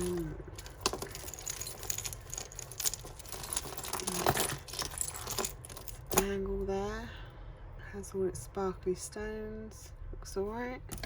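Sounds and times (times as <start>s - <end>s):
jewellery clinking and rattling: 0.0s - 6.3s.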